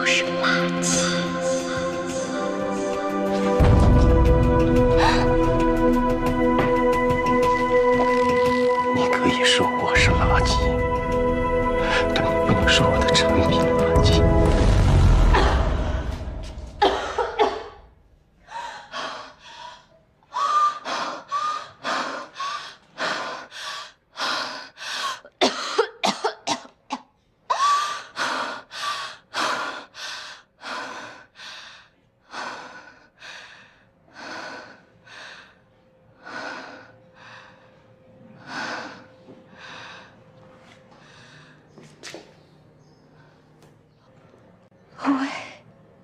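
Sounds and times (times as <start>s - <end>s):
person breathing hard: 4.6s - 5.8s, 18.4s - 25.8s, 27.5s - 41.8s.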